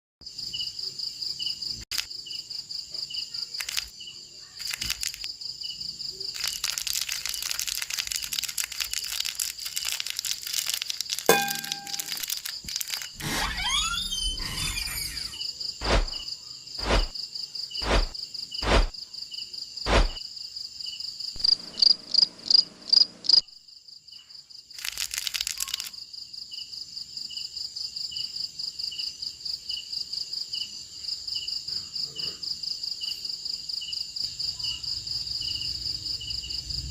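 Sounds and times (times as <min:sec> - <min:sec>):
insect chirping: 0:00.2 - 0:31.7, 0:32.5 - 0:36.9
shrill insect trill: 0:00.3 - 0:36.9
crackling noise: 0:01.9 - 0:02.1, 0:03.5 - 0:03.9, 0:04.6 - 0:05.3, 0:06.3 - 0:16.2, 0:16.8 - 0:17.2, 0:17.8 - 0:19.0, 0:19.9 - 0:20.2, 0:24.8 - 0:25.9.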